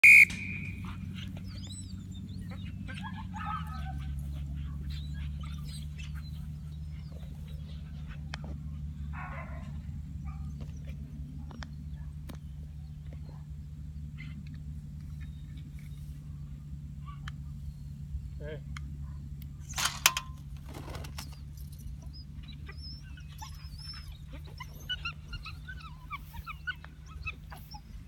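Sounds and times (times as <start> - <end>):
small birds chirping: 0.0 - 19.6, 20.4 - 28.0
low steady hum: 0.0 - 28.0.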